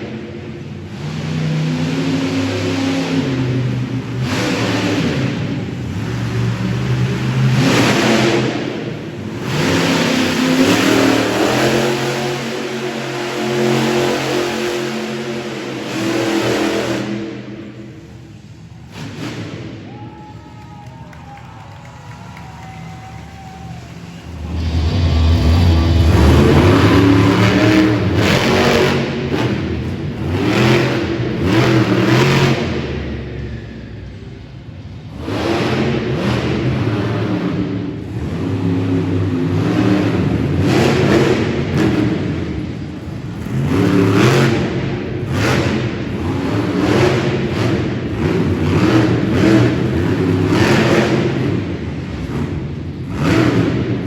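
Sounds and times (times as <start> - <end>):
monster truck engine revving: 0.0 - 54.0.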